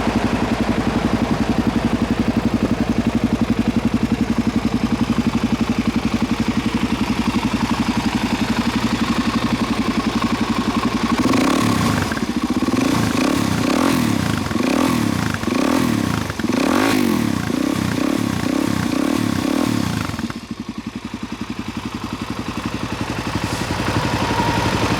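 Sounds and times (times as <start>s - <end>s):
motorcycle engine idling and revving: 0.0s - 24.9s.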